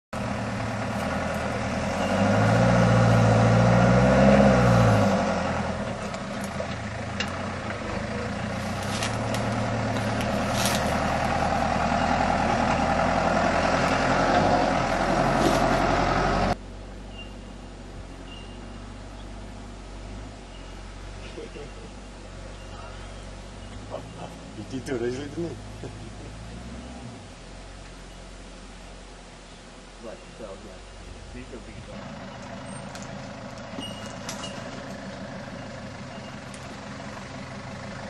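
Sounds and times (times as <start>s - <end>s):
engine revving under load: 0.2s - 17.4s, 18.0s - 27.7s.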